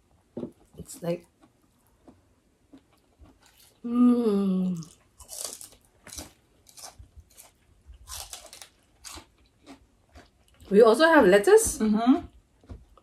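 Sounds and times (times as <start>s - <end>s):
lettuce crunching when chewed: 0.5s - 3.9s, 4.7s - 10.7s
person humming: 3.8s - 4.9s.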